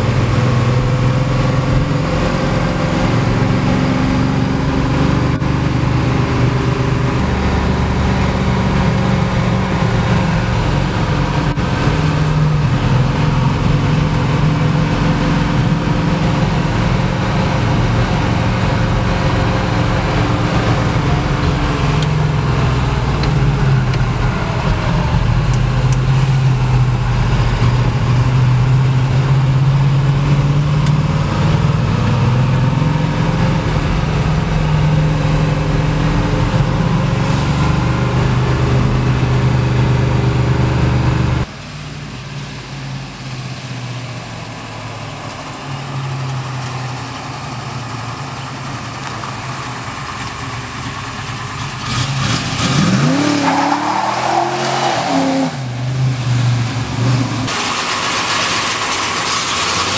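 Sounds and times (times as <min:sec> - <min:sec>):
car engine hum from inside: 0:00.0 - 0:57.6.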